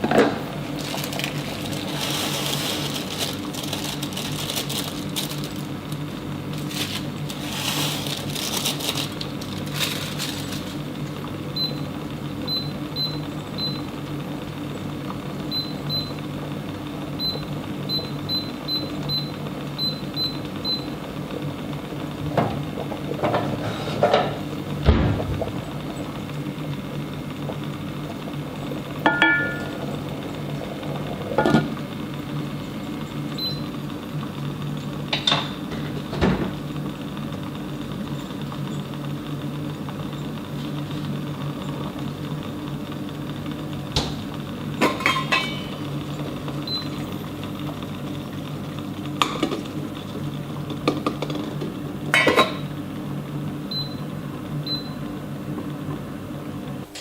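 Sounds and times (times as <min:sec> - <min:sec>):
kitchen appliance humming: 0:00.0 - 0:57.0
dishes and utensils clinking: 0:44.8 - 0:45.8.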